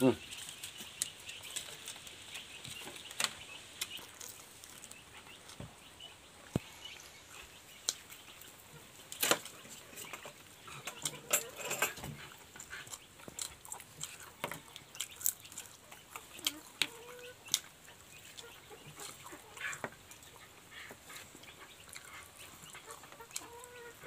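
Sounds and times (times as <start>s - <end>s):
person chewing and smacking: 2.6s - 5.6s, 12.0s - 23.6s.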